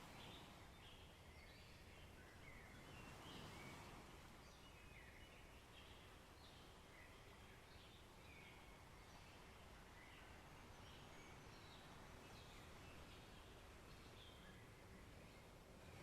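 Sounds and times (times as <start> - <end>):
small birds chirping: 4.4 - 16.0.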